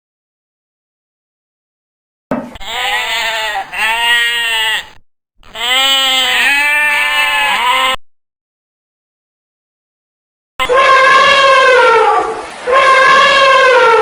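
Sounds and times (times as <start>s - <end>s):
sheep or goat bleating: 2.6s - 8.0s.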